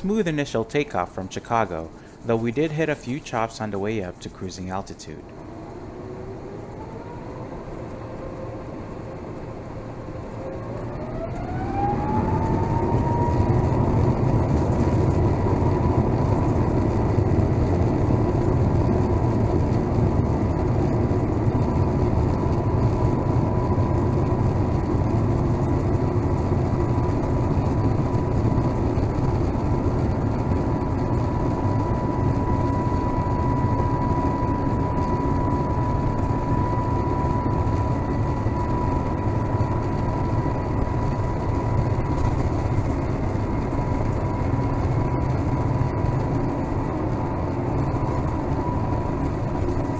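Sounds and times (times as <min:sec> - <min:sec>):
high whine over low rumble: 0:00.0 - 0:49.9
jet engines spooling up: 0:00.0 - 0:49.9.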